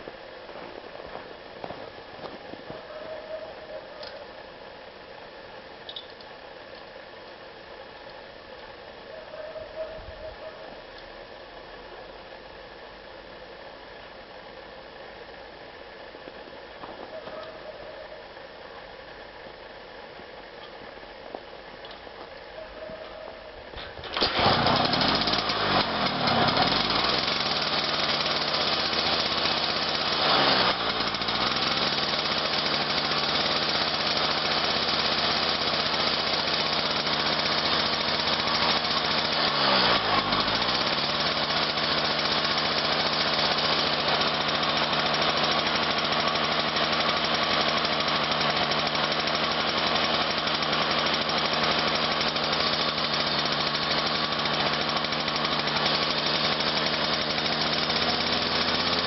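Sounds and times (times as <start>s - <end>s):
cold car engine idling: 0.0s - 59.0s.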